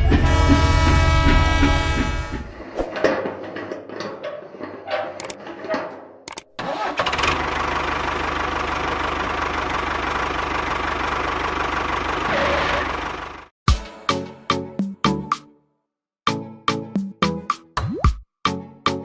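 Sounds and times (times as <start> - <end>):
small engine running: 6.6 - 13.5.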